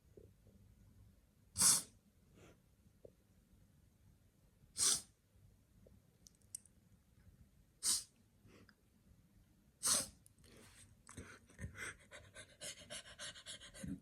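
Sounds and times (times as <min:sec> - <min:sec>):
sharp breathy puffs: 0:04.8 - 0:05.1, 0:07.8 - 0:08.1.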